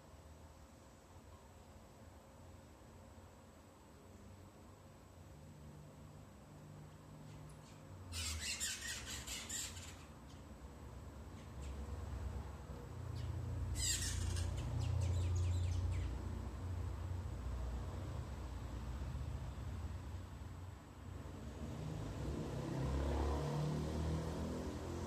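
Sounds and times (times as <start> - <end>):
birds squawking: 8.1 - 10.1, 13.2 - 16.1.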